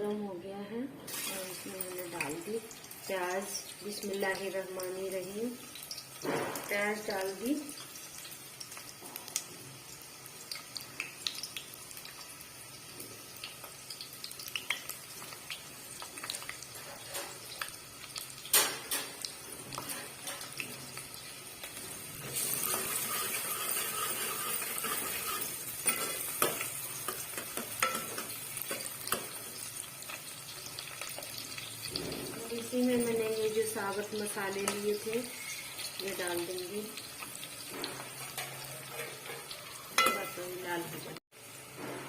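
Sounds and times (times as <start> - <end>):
onions sizzling in oil: 1.1 - 42.0
spoon scraping a pan: 16.3 - 17.6, 18.5 - 20.7, 22.2 - 29.5, 34.6 - 36.1, 37.6 - 40.6.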